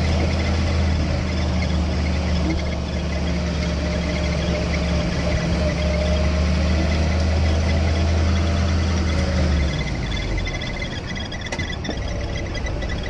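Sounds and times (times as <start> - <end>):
jeep engine running: 0.0 - 13.0.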